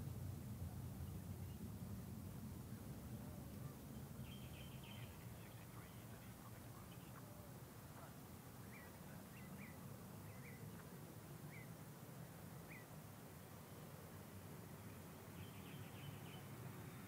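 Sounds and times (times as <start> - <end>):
faint bird chirps: 3.6 - 11.8, 12.6 - 13.0, 15.3 - 17.0.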